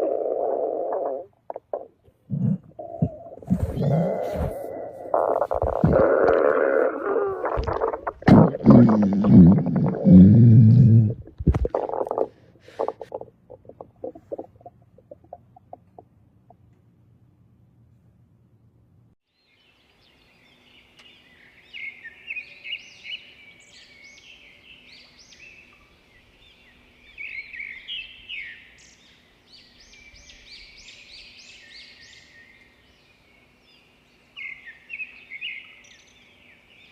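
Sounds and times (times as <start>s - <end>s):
faint steady hum: 0.0s - 36.9s
birds chirping and singing: 2.4s - 4.8s.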